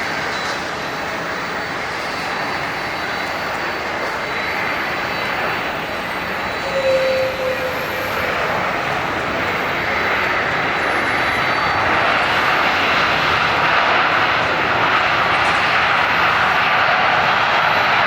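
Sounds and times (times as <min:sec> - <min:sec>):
jet engines roaring: 0:00.0 - 0:18.0
short whistle-like tone: 0:06.5 - 0:08.1.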